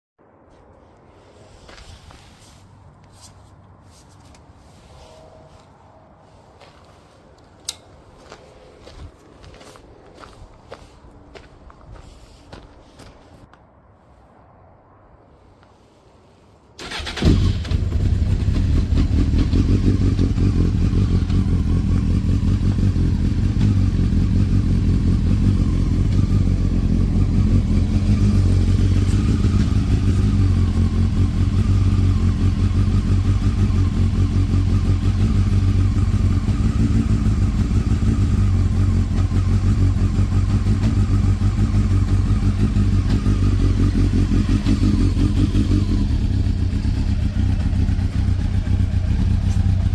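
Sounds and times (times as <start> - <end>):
motorcycle engine idling: 16.8 - 49.9
motorcycle engine starting: 16.8 - 49.9.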